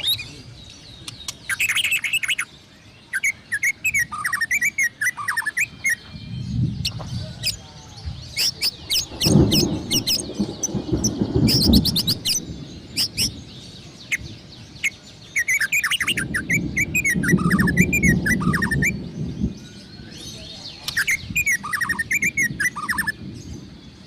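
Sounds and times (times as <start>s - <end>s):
songbird singing: 0.0s - 24.0s
low rumble: 6.0s - 14.6s.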